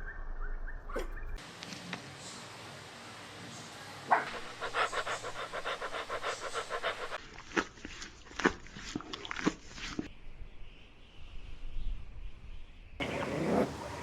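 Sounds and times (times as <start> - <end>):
puppy panting fast: 4.3 - 7.6.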